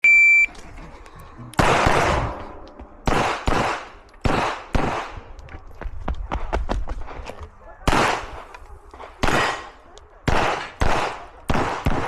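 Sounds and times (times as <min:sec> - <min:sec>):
shot timer beep: 0:00.0 - 0:00.5
pistol shots echoing: 0:01.6 - 0:05.3, 0:07.9 - 0:08.5, 0:09.2 - 0:12.0.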